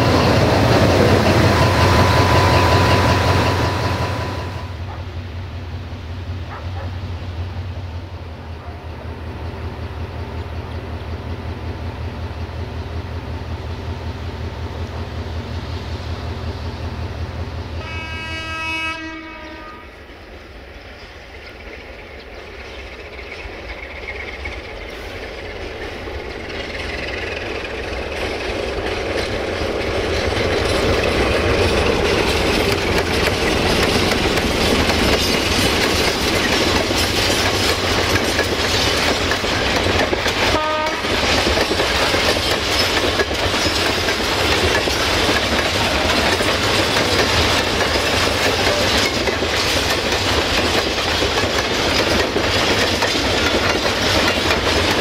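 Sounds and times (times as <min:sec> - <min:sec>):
locomotive horn: 0:17.8 - 0:20.1, 0:40.4 - 0:41.2
wagon wheels clattering over rail joints: 0:21.7 - 0:55.0.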